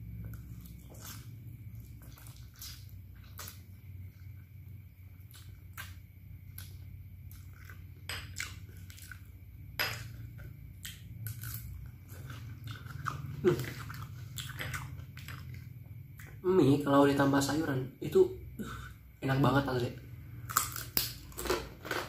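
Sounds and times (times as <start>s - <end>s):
person chewing crunchy food: 0.0s - 16.4s, 20.1s - 22.0s
low steady hum: 0.0s - 22.0s.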